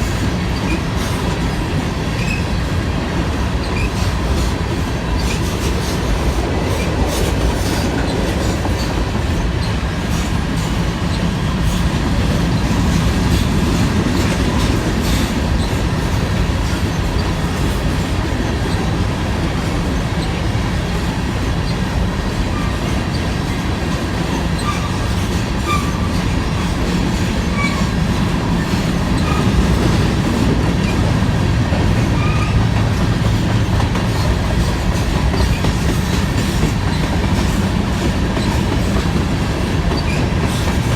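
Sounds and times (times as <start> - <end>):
train wheels clickety-clack: 0.0 - 40.9.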